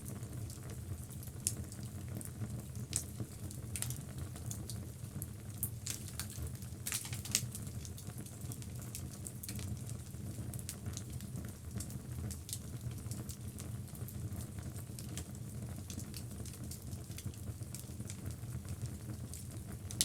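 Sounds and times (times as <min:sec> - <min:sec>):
low rumble of flame: 0:00.0 - 0:20.0
wood crackling and popping: 0:02.9 - 0:04.7, 0:05.5 - 0:10.0, 0:10.6 - 0:20.0.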